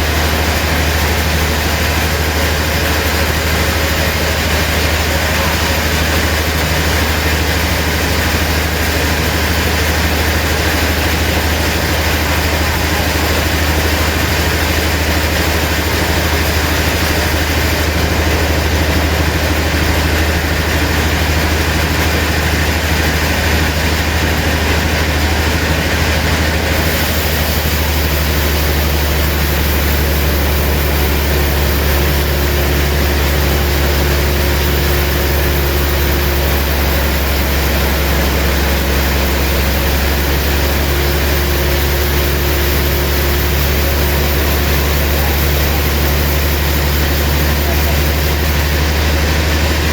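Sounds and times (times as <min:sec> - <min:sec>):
heavy engine droning: 0:00.0 - 0:49.9
mechanical noise: 0:26.7 - 0:49.9.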